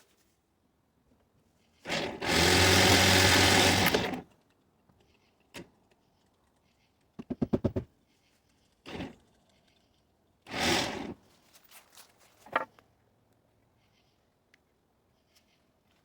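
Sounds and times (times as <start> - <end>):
small motor running: 2.2 - 4.2.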